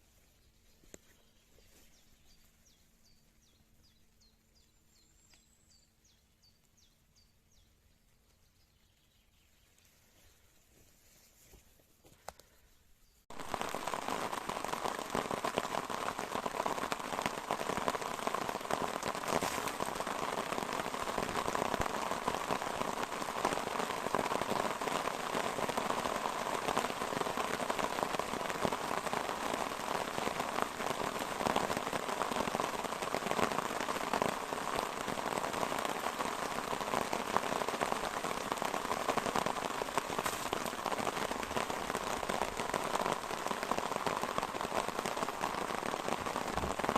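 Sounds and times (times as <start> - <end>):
rain pattering: 13.2 - 46.9.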